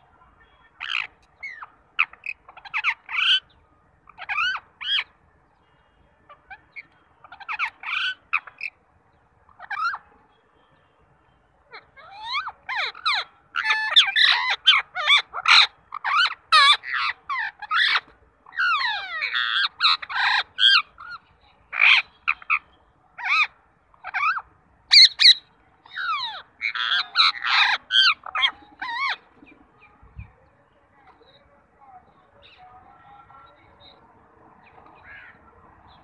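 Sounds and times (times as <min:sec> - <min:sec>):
birds squawking: 0:00.7 - 0:05.2, 0:06.3 - 0:08.8, 0:09.5 - 0:10.1, 0:11.7 - 0:30.0, 0:34.8 - 0:36.0.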